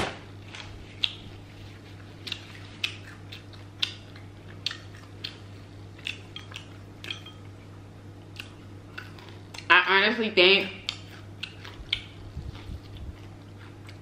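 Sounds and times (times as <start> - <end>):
low electrical hum: 0.0 - 14.0
wet mouth clicks while chewing: 0.6 - 1.3, 2.2 - 7.3, 8.3 - 9.7, 10.8 - 14.0.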